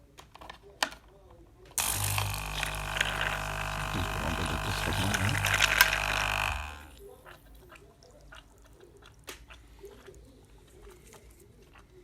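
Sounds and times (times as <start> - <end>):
water pump humming: 1.8 - 7.0.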